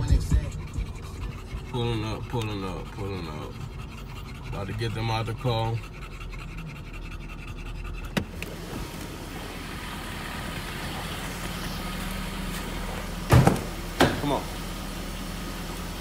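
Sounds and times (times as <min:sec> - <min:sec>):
dog panting: 0:00.0 - 0:13.2
car engine idling: 0:00.0 - 0:16.0
loud thump: 0:13.3 - 0:14.2.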